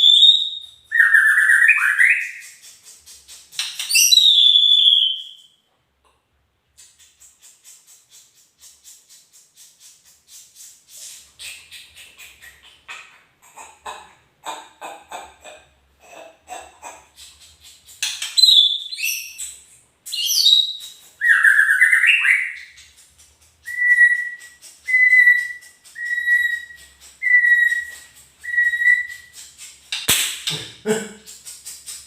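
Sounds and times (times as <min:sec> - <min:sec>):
songbird singing: 0:03.6 - 0:05.5, 0:17.9 - 0:32.0.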